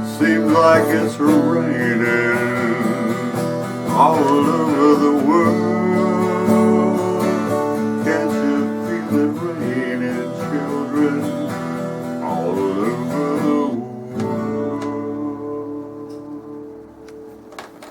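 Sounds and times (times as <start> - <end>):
acoustic guitar playing: 0.0 - 17.9.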